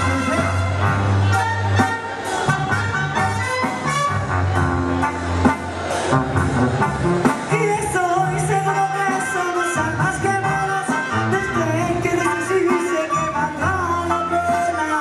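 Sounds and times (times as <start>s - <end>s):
brass and drums band: 0.0s - 15.0s
person singing: 7.4s - 15.0s.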